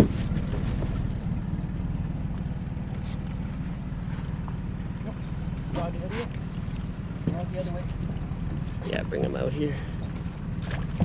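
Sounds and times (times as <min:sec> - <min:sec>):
boat motor running: 0:00.0 - 0:11.0.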